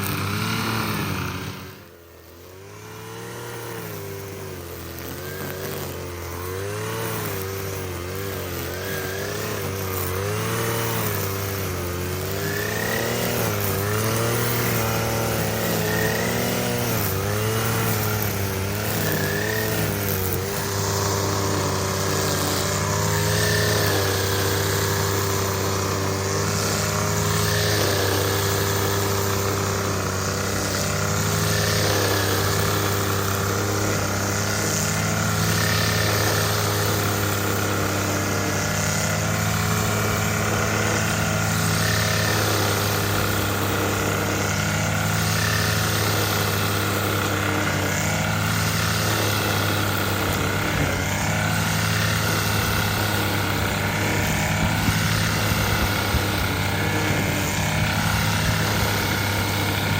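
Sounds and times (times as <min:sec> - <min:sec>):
string trimmer engine running: 0:00.0 - 0:59.9.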